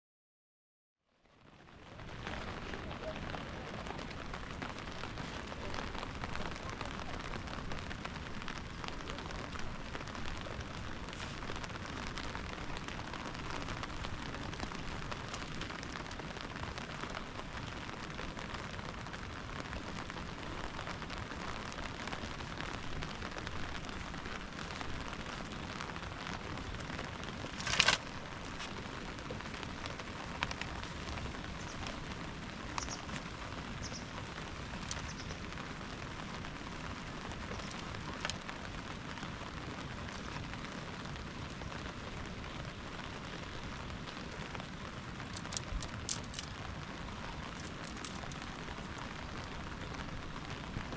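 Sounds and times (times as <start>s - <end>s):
steady rain falling: 1.0s - 50.9s
sharp crack: 26.8s - 28.8s.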